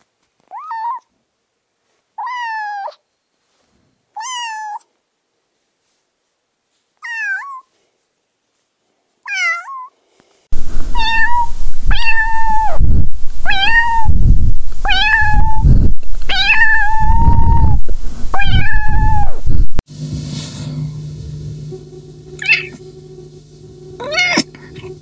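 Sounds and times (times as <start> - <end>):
cat meowing: 0.5 - 1.1, 2.2 - 3.0, 4.2 - 4.9, 7.0 - 7.7, 9.3 - 9.9, 11.0 - 12.8, 13.4 - 14.2, 14.8 - 15.6, 16.3 - 19.4, 22.4 - 22.8, 24.0 - 24.9
loud low rumble: 10.5 - 25.0.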